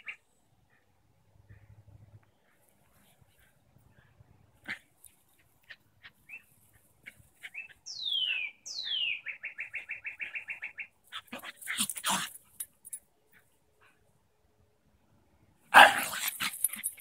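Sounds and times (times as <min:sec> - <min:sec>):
songbird singing: 0:00.0 - 0:11.6
dogs making harsh sounds: 0:11.1 - 0:12.7, 0:15.7 - 0:17.0.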